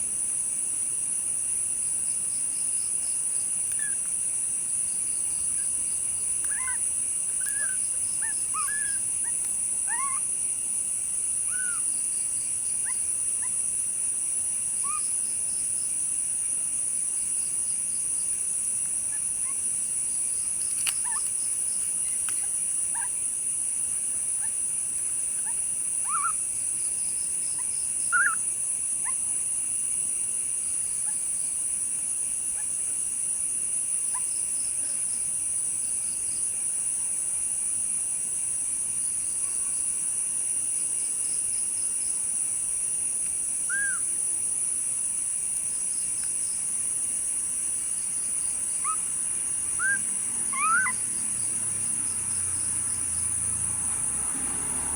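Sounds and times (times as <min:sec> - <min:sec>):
insect chorus pulsed chirping: 0:00.0 - 0:54.9
short high calls: 0:49.8 - 0:51.0.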